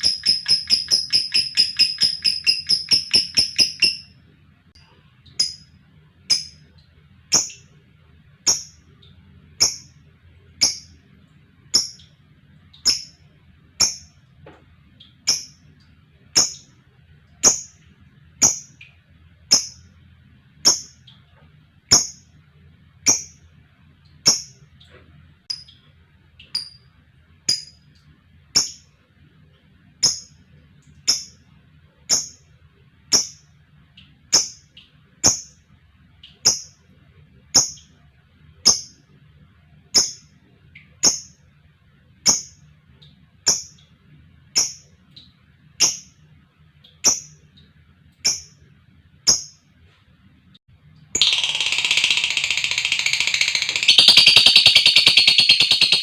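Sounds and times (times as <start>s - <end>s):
lovebird high-pitched calls: 0.0s - 4.2s, 7.3s - 7.7s, 8.4s - 8.8s, 9.6s - 10.0s, 10.6s - 11.0s, 11.7s - 12.1s, 12.8s - 13.2s, 13.8s - 14.2s, 16.4s - 16.7s, 19.5s - 19.9s, 23.0s - 23.4s, 24.2s - 24.6s, 28.6s - 28.8s, 30.0s - 30.4s, 31.1s - 31.4s, 32.1s - 32.4s, 40.0s - 40.3s, 41.0s - 41.4s, 43.4s - 43.8s, 45.8s - 46.2s, 47.0s - 47.4s, 48.2s - 48.6s, 49.3s - 49.6s, 51.2s - 56.0s.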